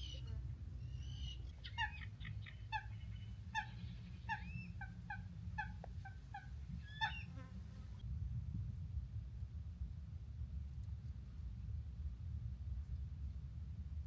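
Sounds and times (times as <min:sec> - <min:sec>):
birds honking: 0:01.0 - 0:07.4
low rumble: 0:08.0 - 0:14.0.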